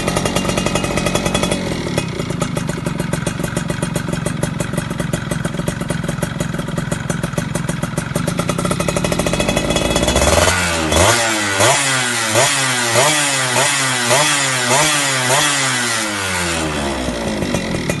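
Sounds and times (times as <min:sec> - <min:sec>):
two-stroke motorcycle engine revving: 0:00.0 - 0:18.0.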